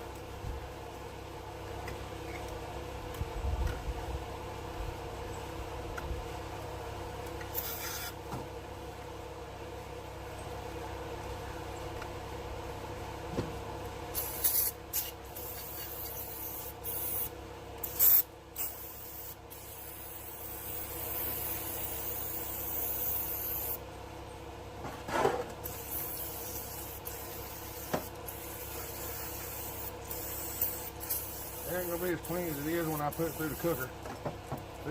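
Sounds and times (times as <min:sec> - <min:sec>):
steady hum: 0:00.0 - 0:34.9
hissing spray blasts: 0:14.1 - 0:23.8, 0:25.6 - 0:33.8.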